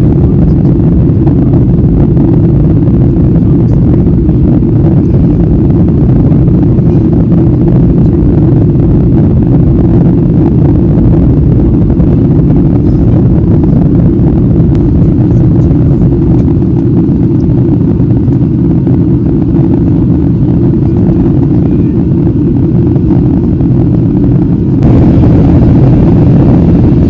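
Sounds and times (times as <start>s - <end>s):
engine and airflow rumble: 0.0s - 27.0s.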